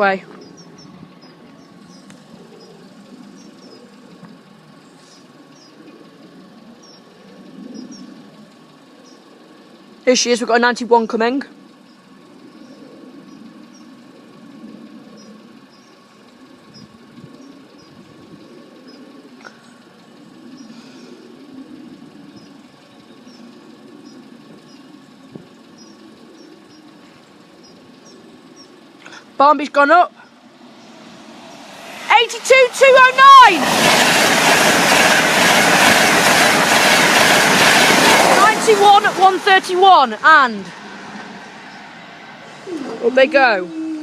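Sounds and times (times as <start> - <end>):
low engine hum: 0.0 - 44.0
faint bird chirps: 0.2 - 8.3, 11.8 - 29.3.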